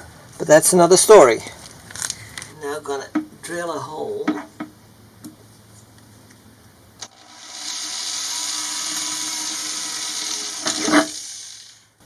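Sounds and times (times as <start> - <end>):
drill click: 7.0 - 11.8
power drill cutting sheet metal: 7.0 - 11.9.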